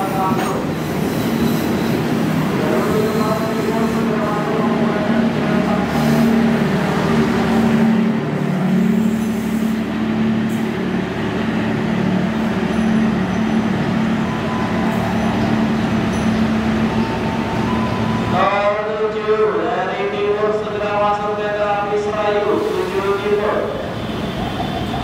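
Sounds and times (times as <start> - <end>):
train wheels rumbling: 0.0 - 25.0.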